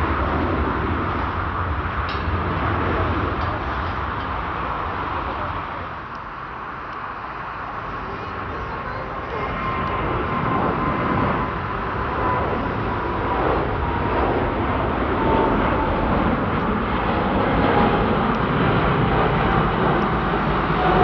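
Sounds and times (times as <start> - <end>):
jet airliner taking off: 0.0 - 21.0.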